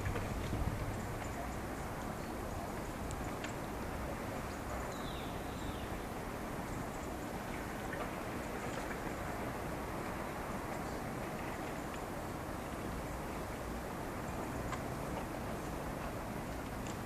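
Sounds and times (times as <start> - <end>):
outdoor noise: 0.0 - 17.0
faint bird chirps: 4.9 - 6.0.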